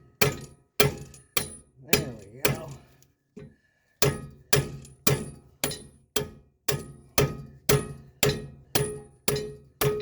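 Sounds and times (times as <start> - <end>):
hammer striking steel: 4.0 - 10.0.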